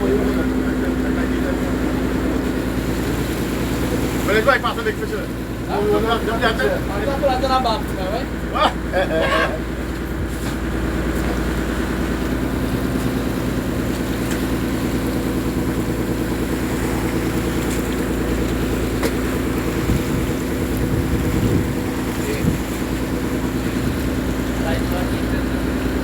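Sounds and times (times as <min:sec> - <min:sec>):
boat engine droning: 0:00.0 - 0:26.0
wind on microphone: 0:19.8 - 0:22.7.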